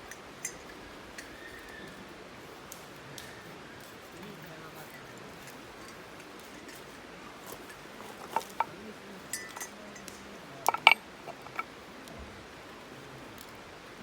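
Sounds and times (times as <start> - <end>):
faint hiss: 0.0 - 14.0
hard objects clinking: 5.5 - 11.7.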